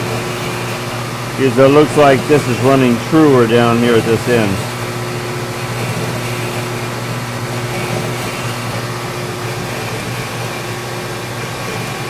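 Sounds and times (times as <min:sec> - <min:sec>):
machine tool motor hum: 0:00.0 - 0:12.0.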